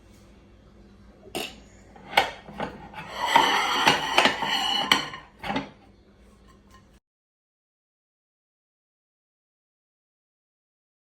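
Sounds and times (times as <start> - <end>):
kitchenware clattering: 1.4 - 7.0.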